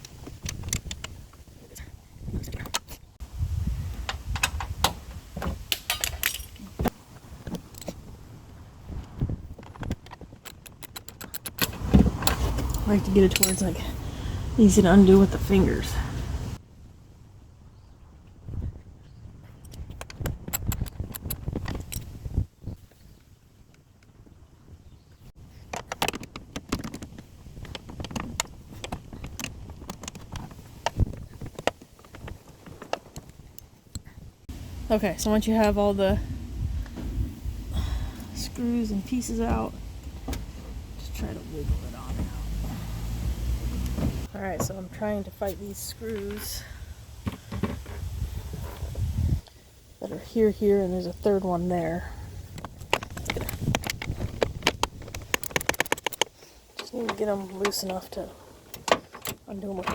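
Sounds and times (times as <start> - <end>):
socket wrench clicking: 10.5 - 12.4.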